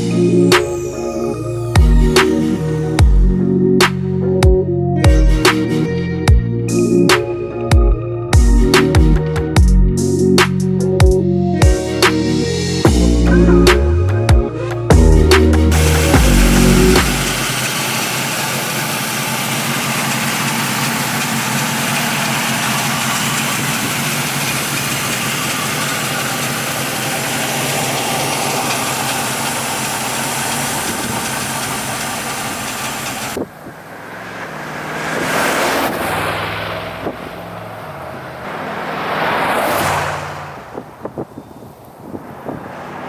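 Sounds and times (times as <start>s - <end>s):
car engine idling: 0.0s - 43.0s
quieter engine sound: 11.7s - 43.0s.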